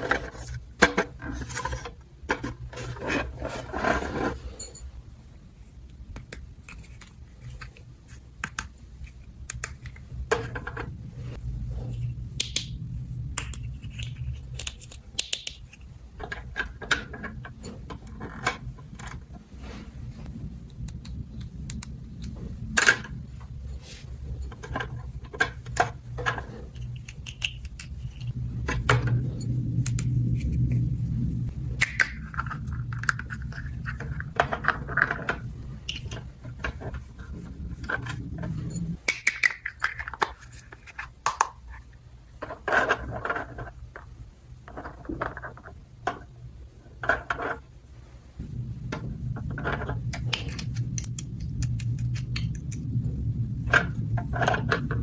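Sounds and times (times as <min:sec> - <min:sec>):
low steady hum: 0:00.0 - 0:55.0
plastic toy parts clicking: 0:13.4 - 0:15.8, 0:26.8 - 0:28.3, 0:39.0 - 0:41.6.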